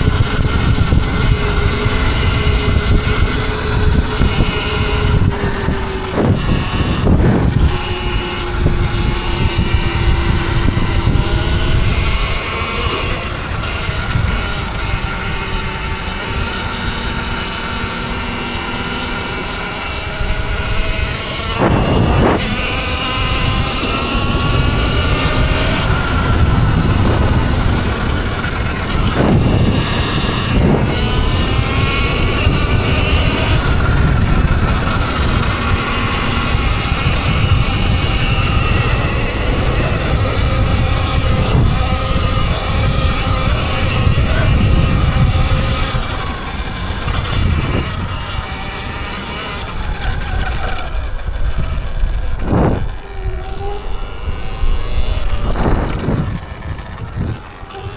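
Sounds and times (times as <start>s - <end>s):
electric motors whining: 0.0s - 57.9s
wind rumble on microphone: 0.0s - 57.9s.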